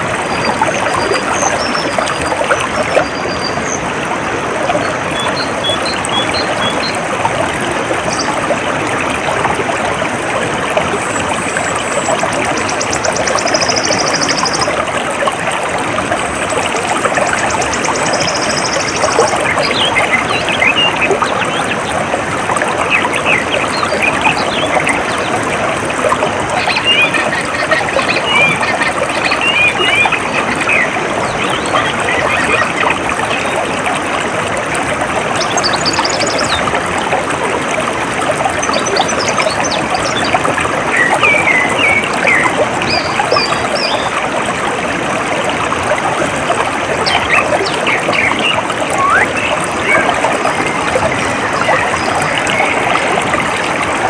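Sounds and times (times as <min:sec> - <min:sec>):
water trickling: 0:00.0 - 0:54.0
birds chirping: 0:11.0 - 0:14.8, 0:47.0 - 0:53.8.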